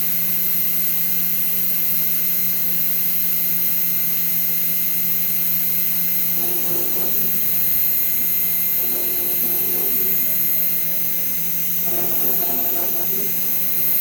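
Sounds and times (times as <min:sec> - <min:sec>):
cnc router whine and hum: 0:00.0 - 0:14.0.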